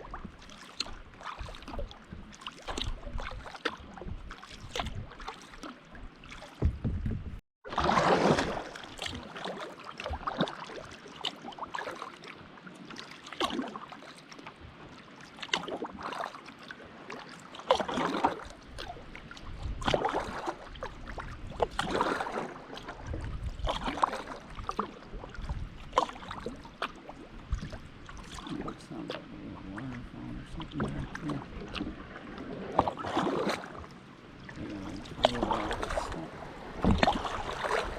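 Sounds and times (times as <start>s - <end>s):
paddle splashing in water: 0.0s - 37.9s.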